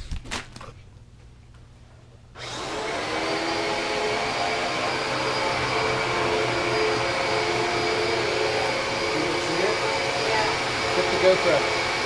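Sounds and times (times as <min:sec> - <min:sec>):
vacuum cleaner motor whine: 0:02.4 - 0:12.0.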